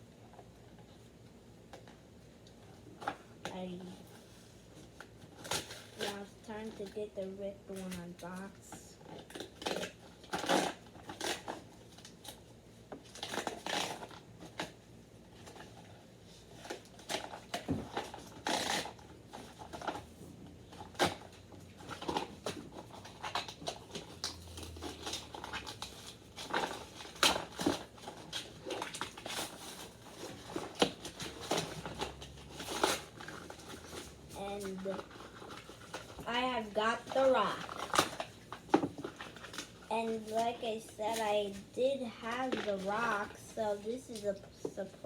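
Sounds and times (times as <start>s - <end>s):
plastic crinkling: 3.0s - 7.0s, 7.7s - 45.0s
scissors snipping packaging: 9.2s - 12.4s, 20.8s - 36.4s.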